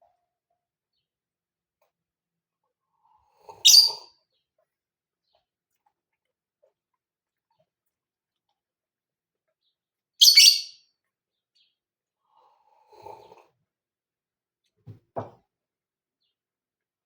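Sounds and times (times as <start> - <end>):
lovebird shrill chirp: 3.6 - 4.1, 10.2 - 10.8
soft knocks: 14.8 - 15.4.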